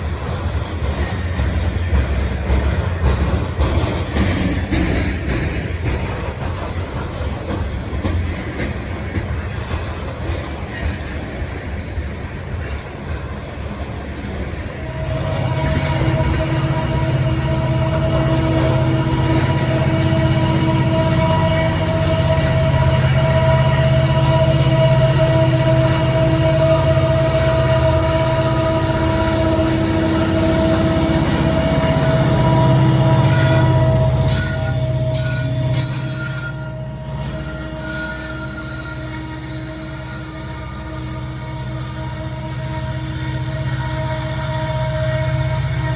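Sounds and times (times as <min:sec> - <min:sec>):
diesel locomotive engine drone: 0:00.0 - 0:45.9
rail cars rumbling and rattling: 0:00.0 - 0:45.9
train wheel squeals: 0:00.0 - 0:45.9.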